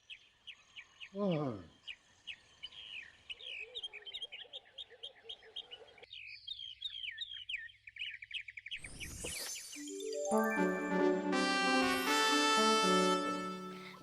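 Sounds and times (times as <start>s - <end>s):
birds chirping and twittering: 0.0s - 10.8s.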